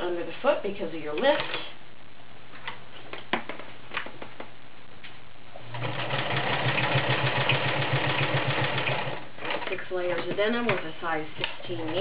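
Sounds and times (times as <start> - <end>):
sewing machine sewing: 5.7 - 9.8, 11.6 - 12.0.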